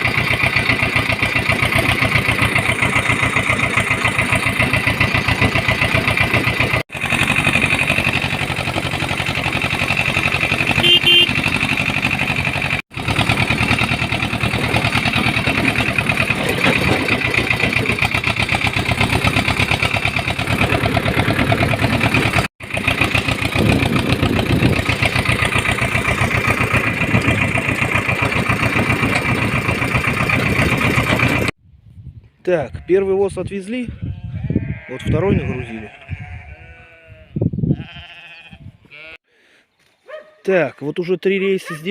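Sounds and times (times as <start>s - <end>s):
tractor engine running: 0.0s - 31.6s.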